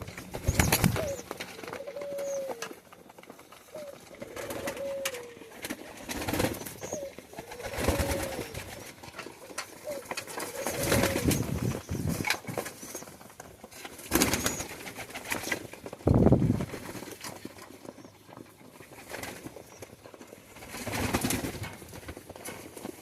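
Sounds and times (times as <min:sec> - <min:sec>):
pigeons cooing: 0:00.0 - 0:13.2, 0:14.1 - 0:15.6.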